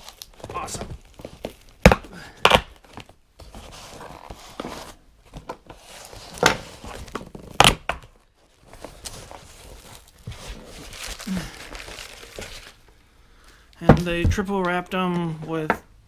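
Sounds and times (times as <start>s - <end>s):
packaging crinkling and tearing: 0.0s - 4.3s, 8.4s - 12.9s.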